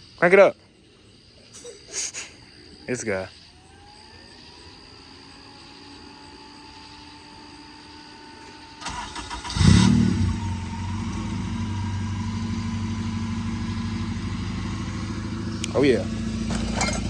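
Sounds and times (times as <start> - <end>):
car engine starting and idling: 3.6 - 17.0
engine starter cranking: 8.7 - 10.6, 16.4 - 17.0.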